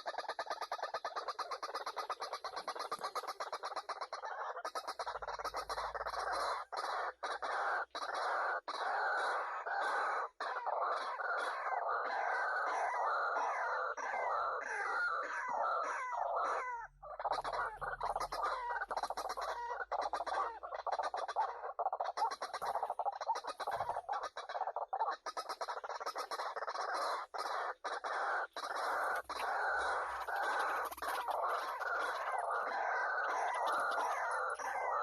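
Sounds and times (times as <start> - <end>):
waterhen croaking calls: 0.0 - 35.0.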